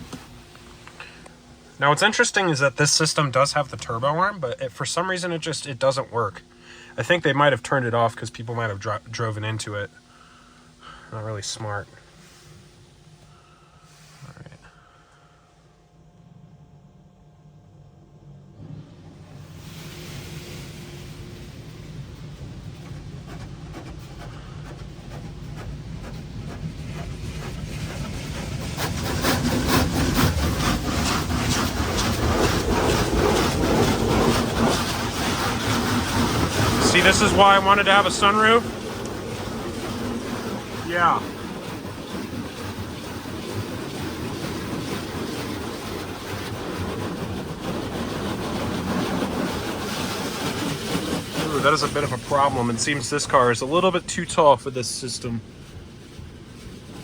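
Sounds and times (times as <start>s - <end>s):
water jets drumming on car body: 0.0s - 14.2s, 18.6s - 57.0s
low rumble: 15.6s - 57.0s.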